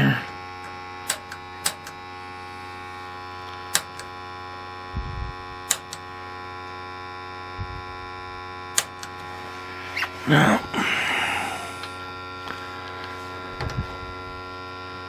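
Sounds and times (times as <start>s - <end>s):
steady hum: 0.0s - 15.0s
igniter clicks: 0.6s - 2.1s, 3.4s - 4.1s, 5.6s - 6.1s, 8.7s - 9.3s.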